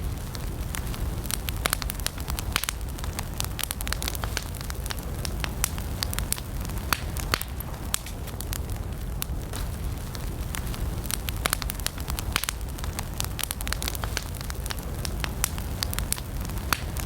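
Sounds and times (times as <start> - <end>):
campfire crackling and popping: 0.0 - 17.0
low rumble of flames: 0.0 - 17.0.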